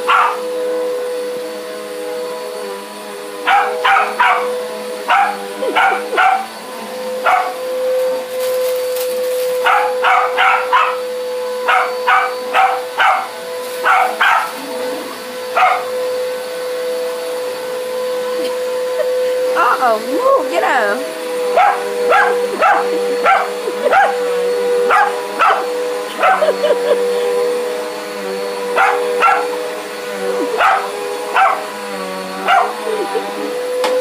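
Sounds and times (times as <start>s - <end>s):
dog barking: 0.0s - 0.4s, 3.4s - 4.5s, 5.1s - 6.5s, 7.2s - 7.6s, 9.6s - 11.0s, 11.6s - 14.5s, 15.6s - 15.9s, 21.5s - 24.2s, 24.9s - 26.5s, 28.8s - 29.6s, 30.5s - 31.6s, 32.4s - 32.8s
vacuum cleaner humming: 0.0s - 34.0s.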